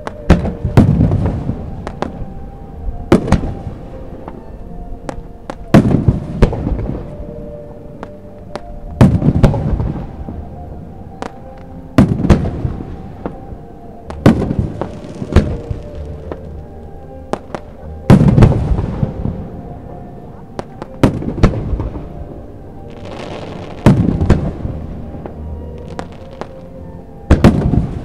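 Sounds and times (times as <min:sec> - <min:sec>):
firework crackle: 0:14.1 - 0:19.4, 0:22.8 - 0:26.7.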